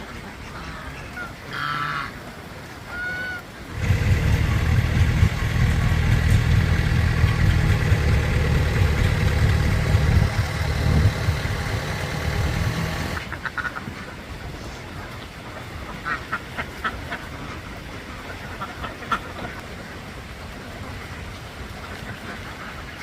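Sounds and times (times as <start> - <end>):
flock of ducks quacking: 0.0 - 20.0, 20.8 - 23.0
truck engine running: 3.7 - 13.2.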